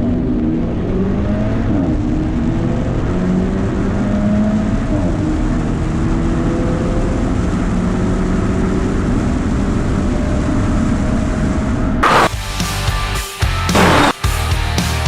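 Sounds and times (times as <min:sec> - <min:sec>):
car engine running: 0:12.0 - 0:12.3, 0:13.8 - 0:14.2
music: 0:12.0 - 0:15.0.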